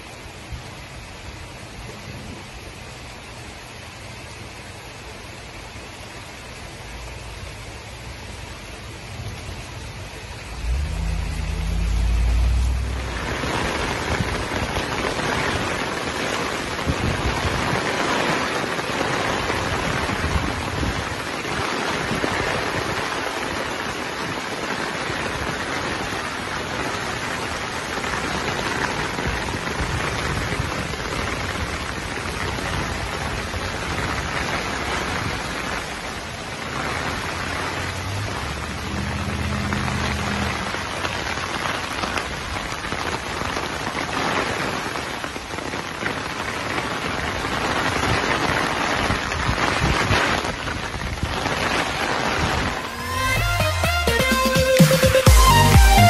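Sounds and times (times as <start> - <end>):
rain falling on foliage: 0.0 - 56.0
low rumble: 9.0 - 15.0, 37.4 - 41.2.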